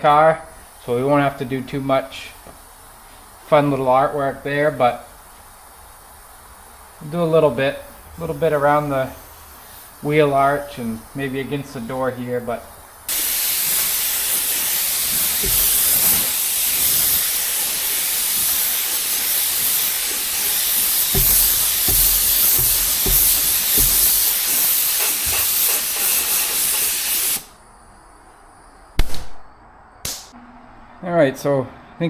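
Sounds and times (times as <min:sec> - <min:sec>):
paint spray gun hissing: 0:05.0 - 0:07.2, 0:08.0 - 0:11.4, 0:12.6 - 0:27.6, 0:30.1 - 0:30.3.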